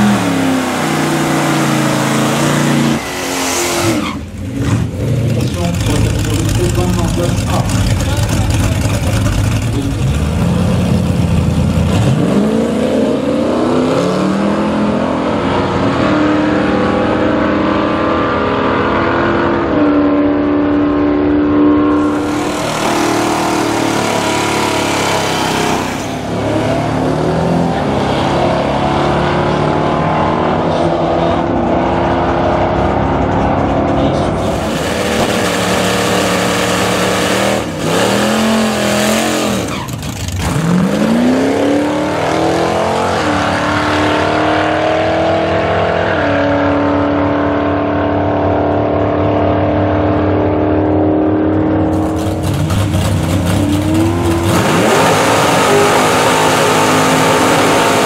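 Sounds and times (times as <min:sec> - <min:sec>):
car engines revving and accelerating: 0:00.0 - 0:58.0
tyre burnout noise: 0:51.9 - 0:58.0.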